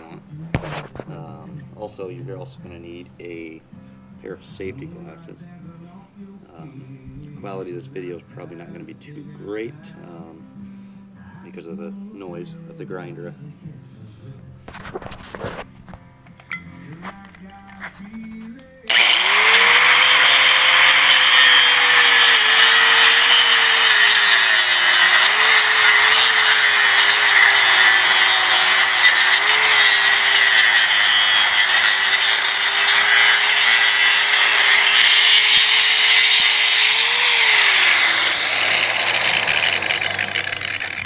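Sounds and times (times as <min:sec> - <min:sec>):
angle grinder cutting metal: 0:16.5 - 0:41.0.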